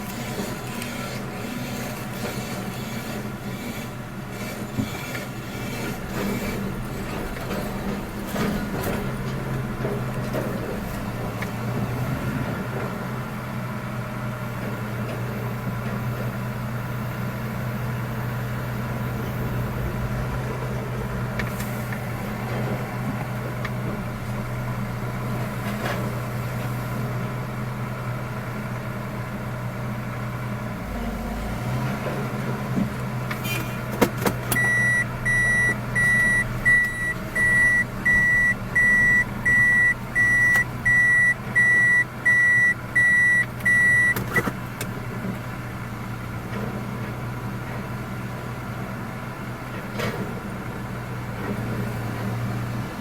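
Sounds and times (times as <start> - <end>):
engine humming: 0.0 - 53.0
reversing alarm beeping: 34.6 - 44.2.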